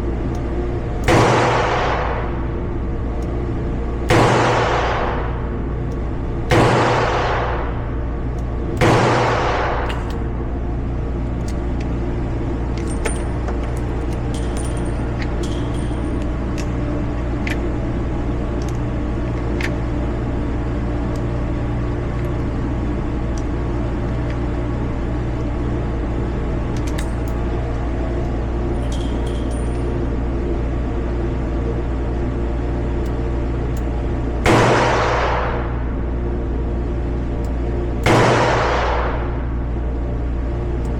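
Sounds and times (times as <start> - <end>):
steady low rumble: 0.0 - 40.9
revolver gunshot: 1.1 - 2.4, 4.1 - 5.4, 6.5 - 7.8, 8.8 - 9.9, 34.5 - 35.6, 38.0 - 39.3
faint metallic clicks and clinks: 12.7 - 17.7, 26.8 - 27.5, 28.8 - 30.1.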